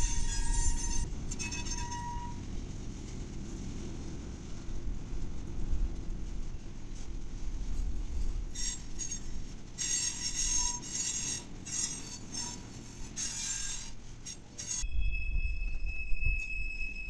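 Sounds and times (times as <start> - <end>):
metallic wheel squealing: 0.0 - 2.5, 8.6 - 17.0.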